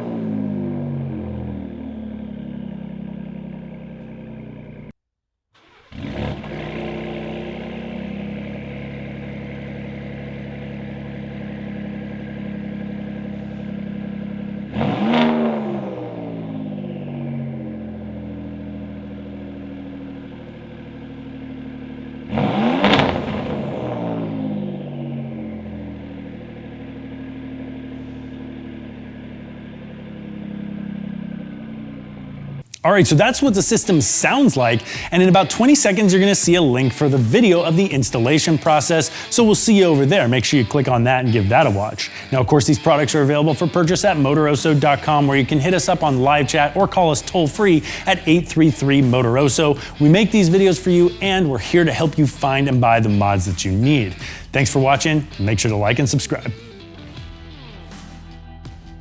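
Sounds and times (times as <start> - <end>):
engine throttle blips: 0.0 - 5.0, 5.6 - 57.2
truck engine idling: 5.7 - 14.7, 16.4 - 22.3, 24.8 - 57.0.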